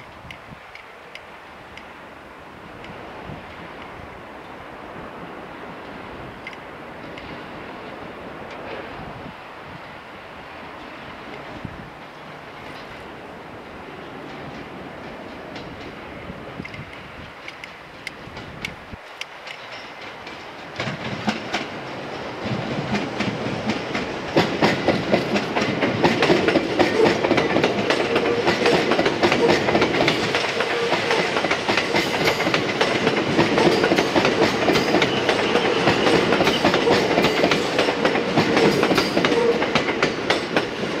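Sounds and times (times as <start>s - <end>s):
train wheels clattering over joints: 14.1s - 41.0s.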